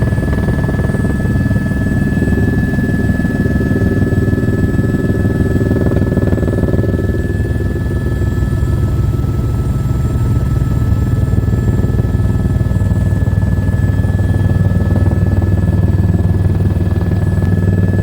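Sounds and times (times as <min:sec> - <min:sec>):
helicopter drone: 0:00.0 - 0:18.0.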